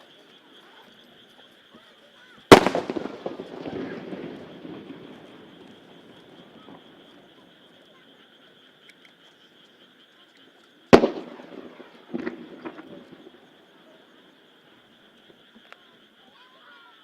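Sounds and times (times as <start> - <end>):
firework shell bursting: 2.5 - 7.3, 10.9 - 13.4.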